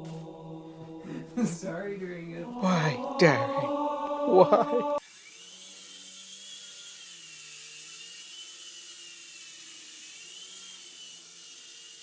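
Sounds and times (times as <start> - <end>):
toy helicopter motor whirring: 5.3 - 12.0.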